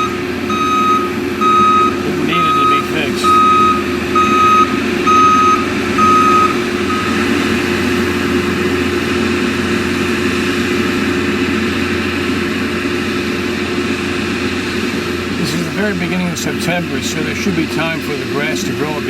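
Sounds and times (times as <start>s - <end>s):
reversing alarm beeping: 0.0s - 9.9s
skid steer engine running: 0.0s - 19.0s.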